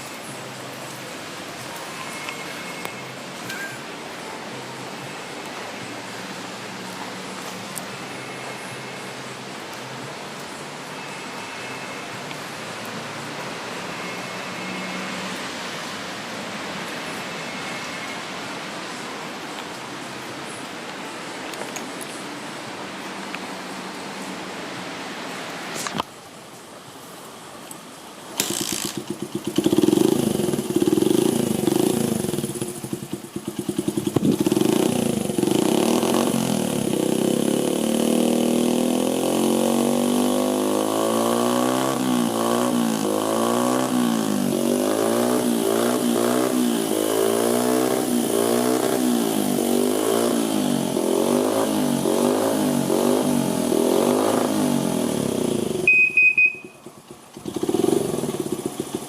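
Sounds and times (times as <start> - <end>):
small motorcycle engine revving and idling: 28.4 - 59.0.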